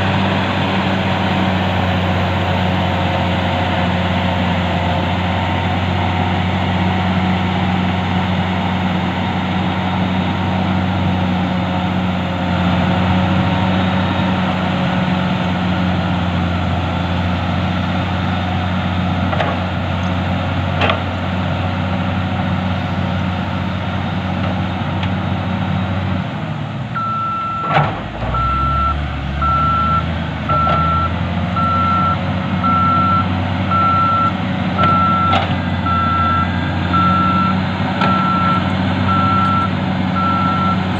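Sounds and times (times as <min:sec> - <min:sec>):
diesel engine of heavy machinery: 0:00.0 - 0:40.9
reversing alarm beeping: 0:27.0 - 0:27.7, 0:28.3 - 0:40.9.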